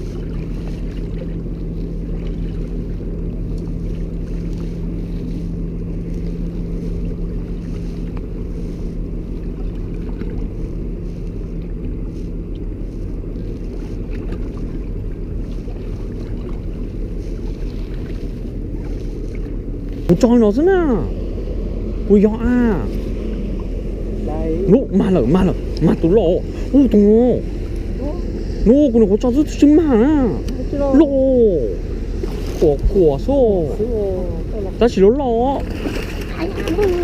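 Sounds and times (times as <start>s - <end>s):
boat motor droning: 0.0s - 37.0s
steady hum: 0.0s - 37.0s
water noise: 0.0s - 37.0s
wind: 0.0s - 37.0s.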